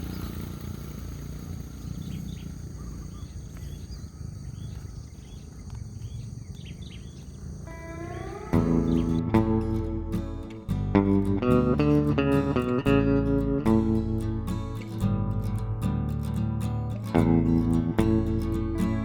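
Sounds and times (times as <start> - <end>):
small birds chirping: 0.0 - 15.6
low outdoor rumble: 0.0 - 19.0
rising tone: 7.6 - 14.9
guitar music: 7.7 - 19.0.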